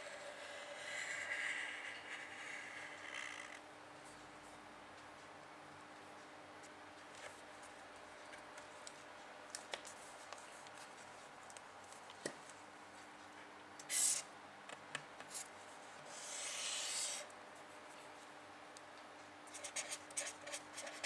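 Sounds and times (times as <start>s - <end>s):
pen drawing on paper: 0.0s - 3.2s, 16.1s - 17.2s.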